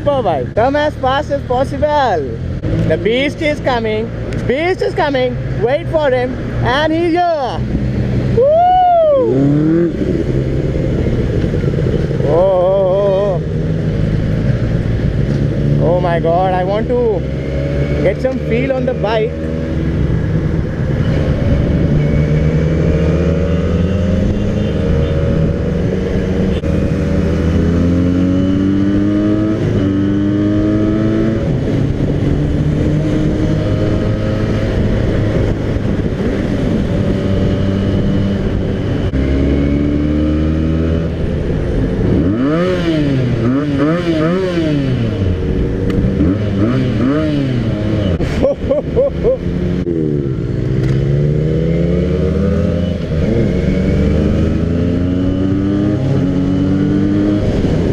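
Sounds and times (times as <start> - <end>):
motorcycle engine accelerating: 0.0 - 57.9
motorcycle engine revving: 9.2 - 57.9.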